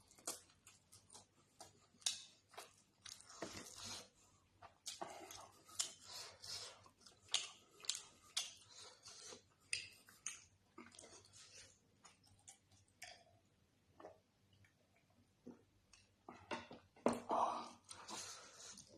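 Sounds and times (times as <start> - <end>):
wet chewing: 0.0 - 13.3.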